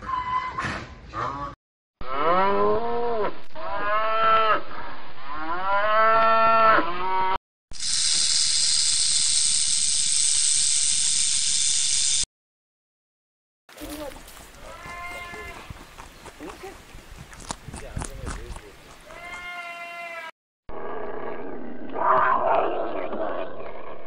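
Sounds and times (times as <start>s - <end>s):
cow mooing: 1.2s - 4.6s, 14.6s - 15.8s.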